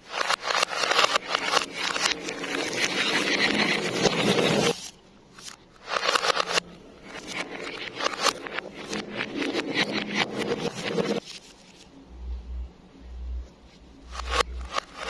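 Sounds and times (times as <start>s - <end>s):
reversed marbles clattering on track: 0.0s - 4.8s, 5.8s - 11.2s, 14.1s - 15.0s.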